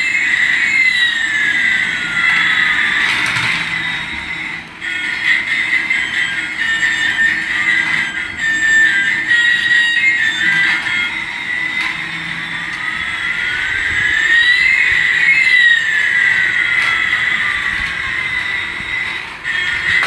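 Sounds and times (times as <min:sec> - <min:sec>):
electronic toy whine: 0:00.0 - 0:20.0.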